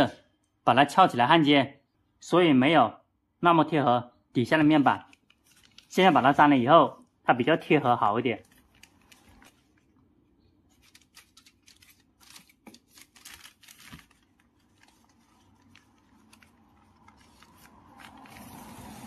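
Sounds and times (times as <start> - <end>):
foil tape clicking and crinkling: 5.0 - 6.0, 8.4 - 10.0, 10.7 - 19.0.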